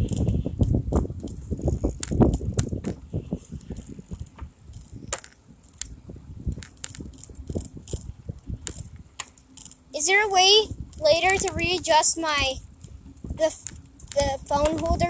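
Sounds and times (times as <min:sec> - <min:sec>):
low rumble: 0:00.0 - 0:09.2
bicycle clicks and rattles: 0:00.0 - 0:09.9, 0:10.7 - 0:15.0.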